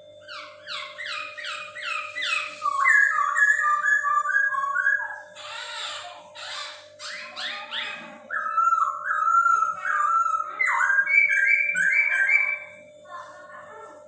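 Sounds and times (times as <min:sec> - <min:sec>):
steady low hum: 0:00.0 - 0:14.0
bird singing whistled notes: 0:00.3 - 0:05.2, 0:08.4 - 0:12.7.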